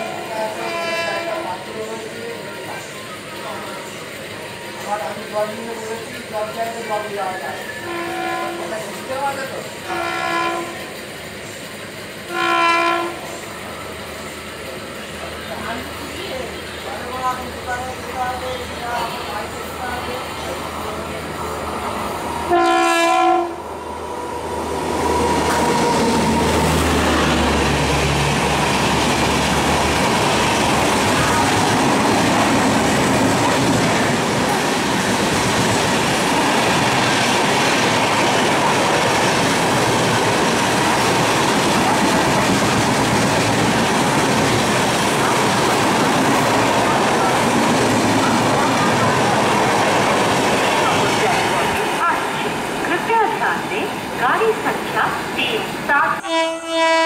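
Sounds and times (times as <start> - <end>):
train rushing past on rails: 0.0 - 57.0
locomotive horn blast: 0.5 - 1.5, 7.8 - 8.8, 9.9 - 10.9, 12.3 - 13.2, 22.5 - 23.6, 56.2 - 57.0.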